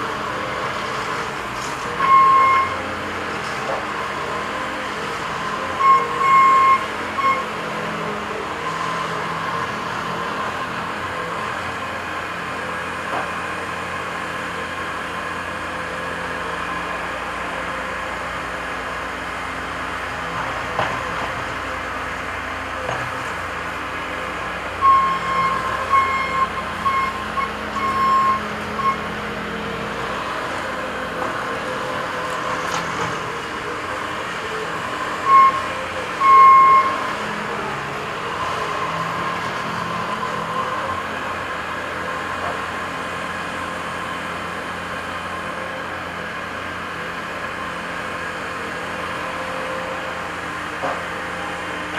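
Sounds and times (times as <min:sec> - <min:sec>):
diesel engine running: 0:00.0 - 0:51.9
reversing alarm beeping: 0:02.0 - 0:02.8, 0:05.8 - 0:07.6, 0:24.8 - 0:29.1, 0:35.2 - 0:37.1.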